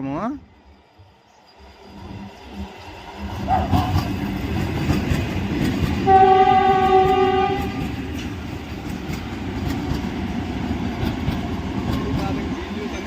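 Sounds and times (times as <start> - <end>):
train passing with rail rumble: 0.0 - 13.0
train horn blast: 6.0 - 8.0.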